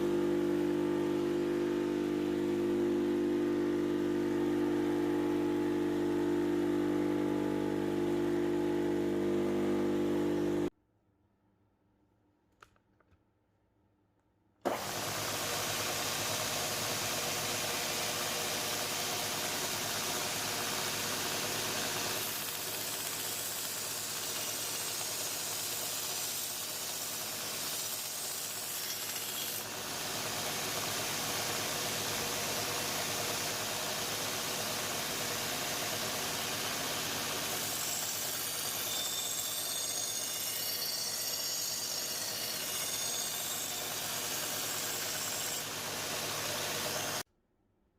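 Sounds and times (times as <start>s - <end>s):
steel grinding on abrasive machine: 36.4s - 47.2s.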